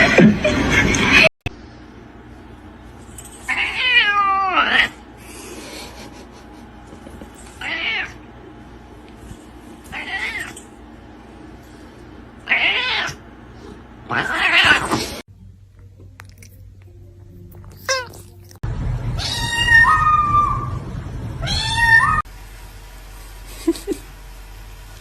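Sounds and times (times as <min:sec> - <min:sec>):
cat meowing: 0:03.5 - 0:05.0, 0:07.6 - 0:08.2, 0:09.9 - 0:10.6, 0:12.4 - 0:13.2, 0:14.1 - 0:15.0, 0:19.2 - 0:20.8, 0:21.4 - 0:22.2.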